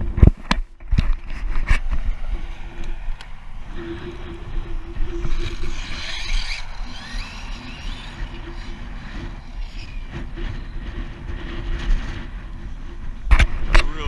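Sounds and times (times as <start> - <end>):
wind buffeting microphone: 0.0 - 14.0
faint rising whine: 1.4 - 14.0.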